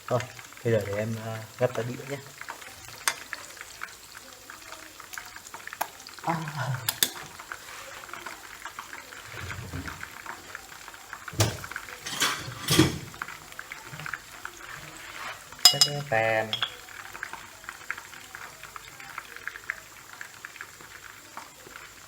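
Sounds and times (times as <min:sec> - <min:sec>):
hot oil sizzling in a frying pan: 0:00.0 - 0:22.0
utensil clicking and scraping on pan: 0:02.2 - 0:04.0, 0:05.0 - 0:18.0.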